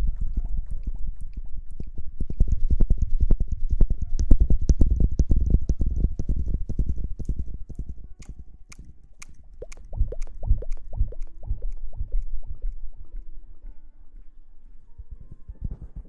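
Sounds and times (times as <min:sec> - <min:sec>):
scratching against microphone: 0:15.1 - 0:16.0.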